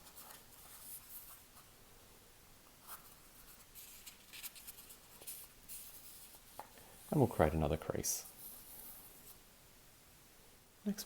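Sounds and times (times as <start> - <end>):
paper rustling while folded: 0.0 - 1.7, 2.8 - 6.6.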